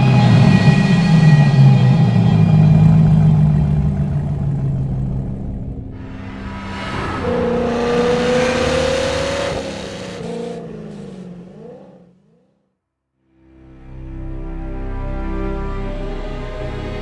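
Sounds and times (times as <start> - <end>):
car engine revving: 2.2 - 12.5.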